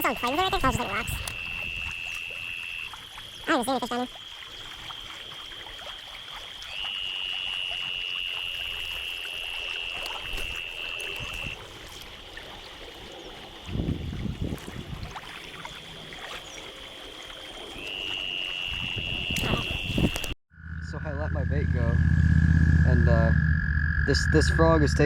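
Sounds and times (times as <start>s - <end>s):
creek water trickling over rocks: 0.0s - 18.7s
high-pitched buzz: 18.0s - 25.0s.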